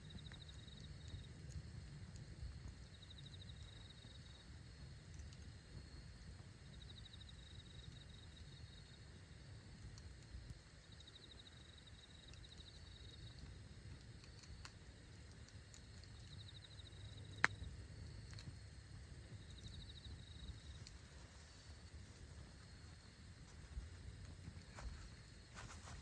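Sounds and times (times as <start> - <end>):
campfire crackling: 0.0 - 26.0
insects trilling: 0.0 - 26.0.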